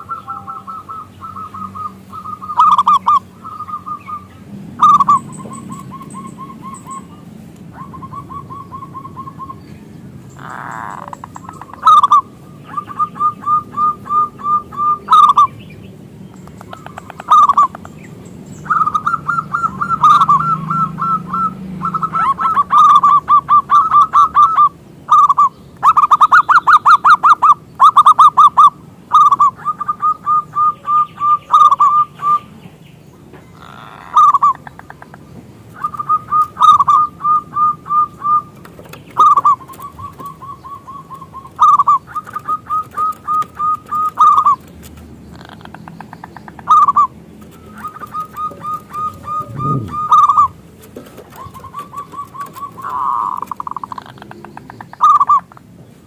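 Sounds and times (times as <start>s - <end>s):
dove cooing: 0.0s - 9.6s, 10.4s - 15.6s, 16.4s - 18.0s, 18.6s - 32.5s, 33.5s - 55.6s
faint high bird chirps: 45.4s - 50.6s.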